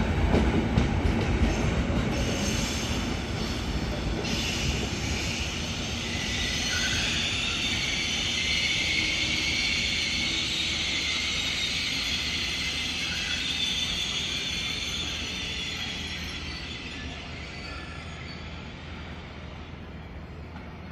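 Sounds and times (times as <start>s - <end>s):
train rolling rumble: 0.0s - 20.9s
high-pitched metallic squeal: 2.2s - 18.7s.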